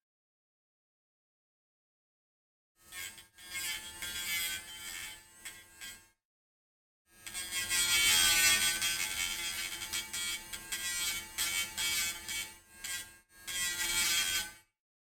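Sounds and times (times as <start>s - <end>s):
rotary tool grinding metal: 2.8s - 6.1s, 7.2s - 14.7s.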